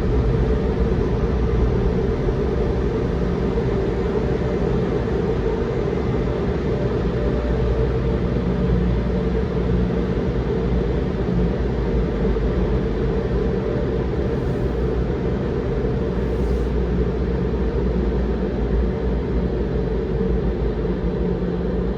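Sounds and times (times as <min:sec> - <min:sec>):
car wash machinery rumble: 0:00.0 - 0:16.7.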